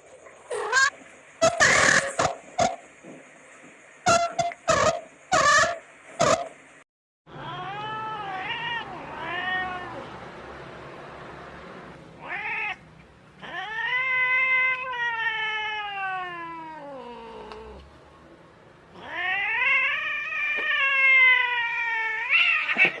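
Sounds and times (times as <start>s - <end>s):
cat meowing: 7.3s - 10.0s, 12.2s - 12.8s, 13.4s - 17.8s, 19.0s - 22.9s.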